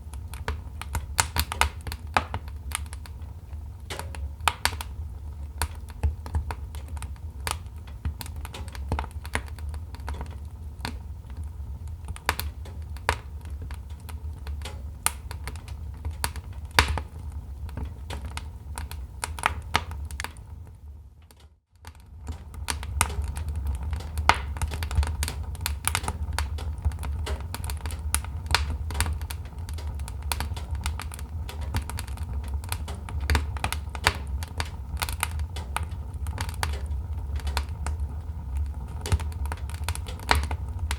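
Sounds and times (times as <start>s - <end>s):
wood fire crackling: 0.0s - 40.9s
low rumble: 22.4s - 40.9s.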